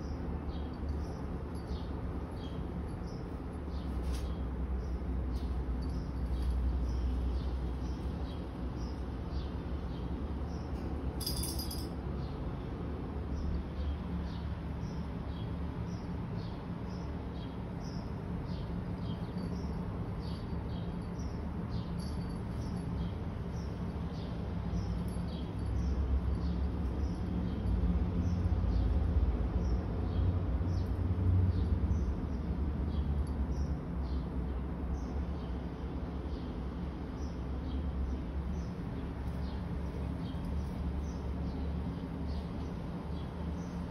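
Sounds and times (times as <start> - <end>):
small birds chirping: 0.0 - 11.5, 12.2 - 43.9.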